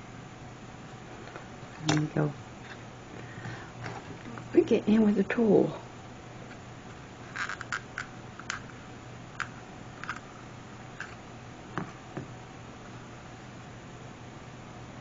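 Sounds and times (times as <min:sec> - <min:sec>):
craft tools clicking and tapping: 0:07.4 - 0:08.7, 0:09.4 - 0:10.2.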